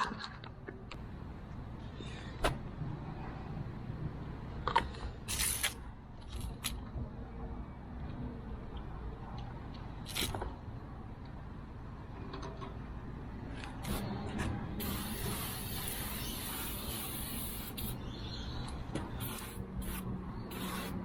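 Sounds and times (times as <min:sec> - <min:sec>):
spray can hissing: 0:14.8 - 0:18.2, 0:19.2 - 0:21.0.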